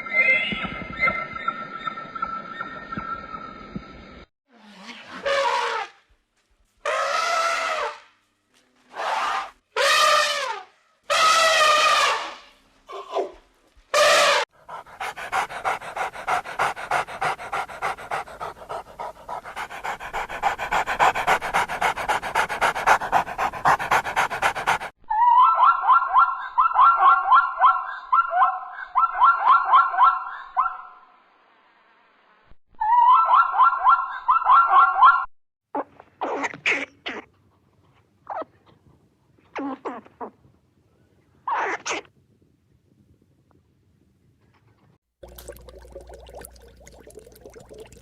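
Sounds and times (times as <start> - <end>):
dog panting: 14.6 - 24.9.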